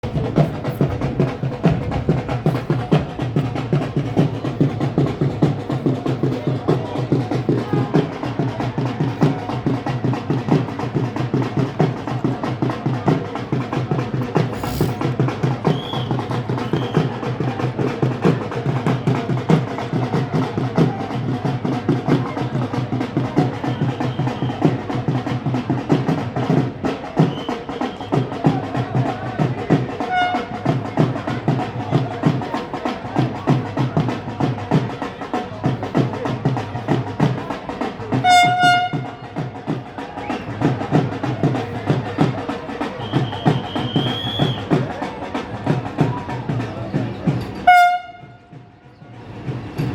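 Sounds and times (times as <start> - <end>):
train wheels clattering on rails: 0.0 - 49.9
train horn: 30.0 - 30.6, 38.2 - 39.2, 47.6 - 48.5.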